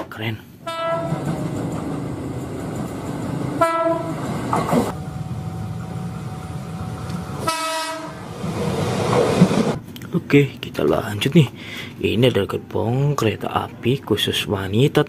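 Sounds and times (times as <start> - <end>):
train horn blasts: 0.6 - 1.3, 3.6 - 4.4, 7.4 - 8.2
train rumbling on rails: 0.6 - 9.9.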